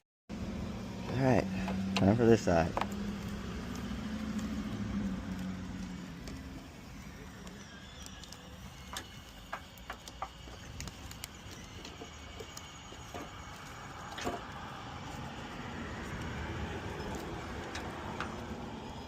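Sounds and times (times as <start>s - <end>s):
steady low hum: 0.3s - 19.0s.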